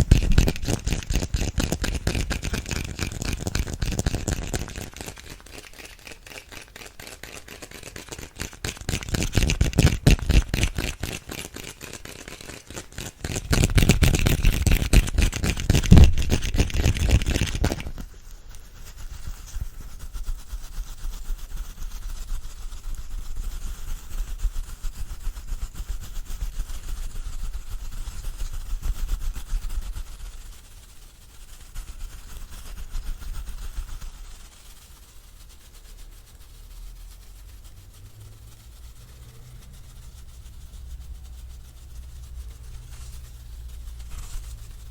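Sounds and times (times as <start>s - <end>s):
brush bristles on microphone: 0.0s - 44.9s
soft rustle: 0.0s - 44.9s.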